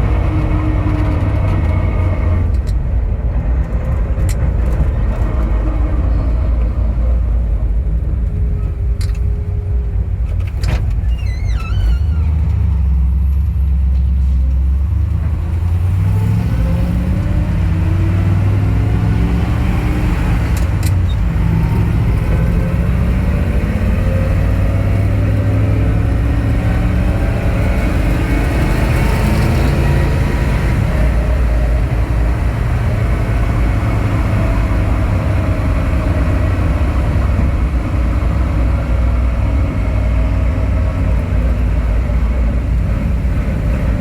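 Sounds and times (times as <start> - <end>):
truck engine running: 12.4 - 44.0.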